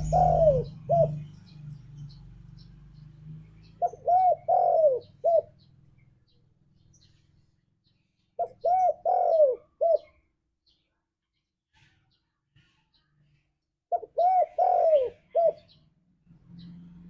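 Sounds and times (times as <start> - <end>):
dove cooing: 0.0 - 1.4, 3.7 - 5.7, 8.4 - 10.2, 13.9 - 15.8.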